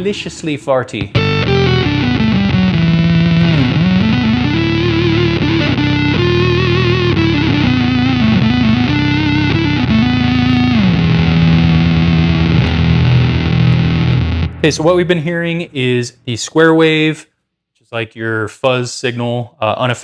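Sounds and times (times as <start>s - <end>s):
fuzzy synth guitar tone: 1.1s - 16.0s.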